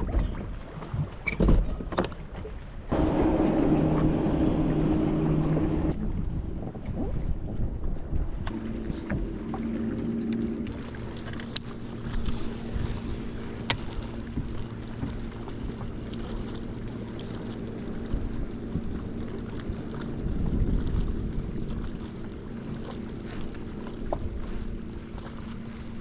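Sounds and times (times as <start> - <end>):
boat motor humming: 2.8 - 26.0
brief low rumble: 2.9 - 15.2.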